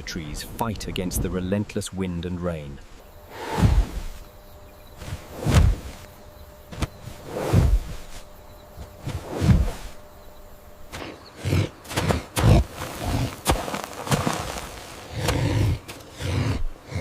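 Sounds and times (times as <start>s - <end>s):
wind gusting through trees: 0.0s - 17.0s.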